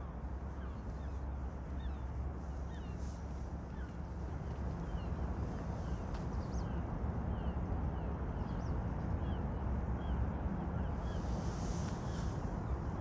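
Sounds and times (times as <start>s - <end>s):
low rumble of outdoor noise: 0.0s - 13.0s.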